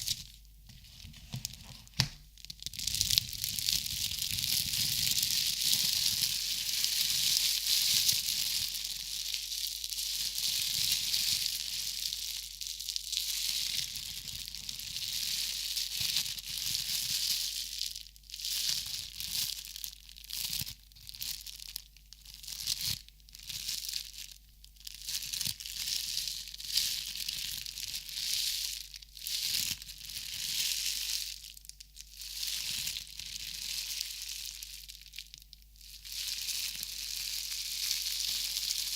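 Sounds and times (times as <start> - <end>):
crinkly material rustling: 0.0 - 5.3, 32.4 - 38.9.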